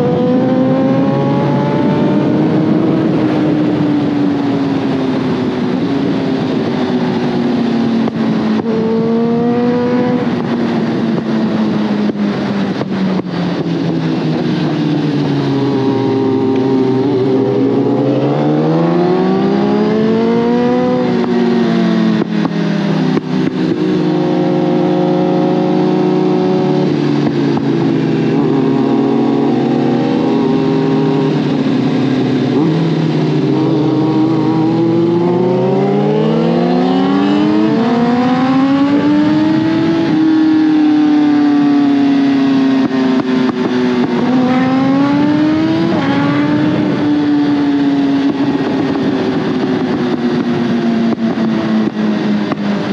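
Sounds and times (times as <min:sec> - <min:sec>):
motorcycle engine revving: 0:00.0 - 0:52.9
steady rushing noise: 0:00.0 - 0:52.9.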